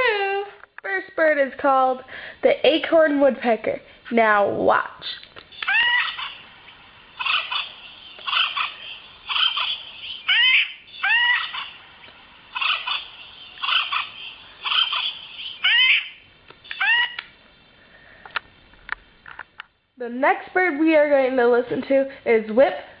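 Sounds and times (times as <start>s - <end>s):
woodpecker calls: 5.6s - 6.5s, 7.2s - 11.8s, 12.5s - 17.3s.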